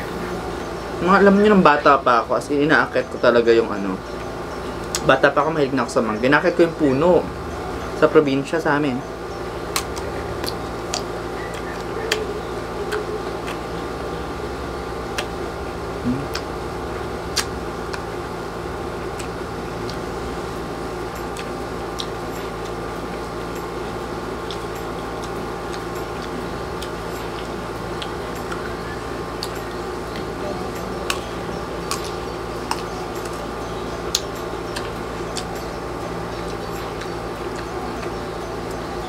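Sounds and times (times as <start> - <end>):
air conditioner hum: 0.0 - 39.0
chewing crisp mango crunching: 9.2 - 39.0.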